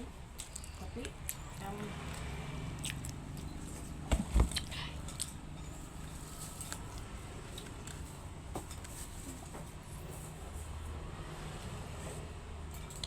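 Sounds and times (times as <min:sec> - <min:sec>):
person chewing: 0:00.4 - 0:08.1.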